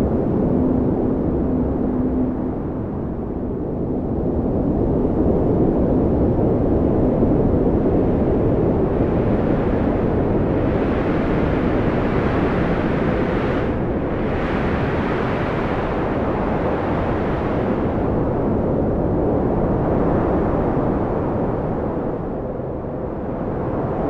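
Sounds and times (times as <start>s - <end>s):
strong wind blowing: 0.0s - 24.0s.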